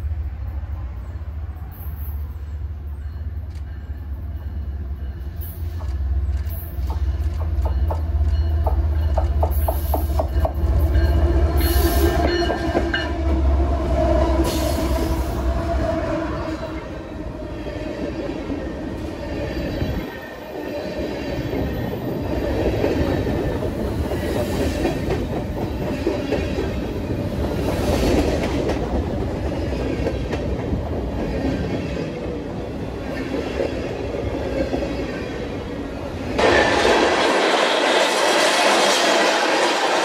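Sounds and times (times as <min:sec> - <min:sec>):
hissy rail noise: 0:00.0 - 0:40.0
train running on rails: 0:00.0 - 0:40.0
clicking over rail joints: 0:05.4 - 0:10.6.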